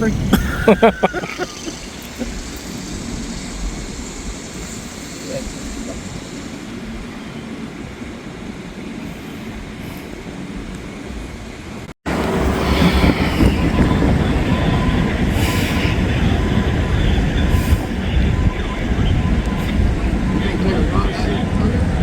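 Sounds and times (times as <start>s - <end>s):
train wheels rumbling: 0.0s - 22.0s
train wheels screeching: 12.1s - 22.0s.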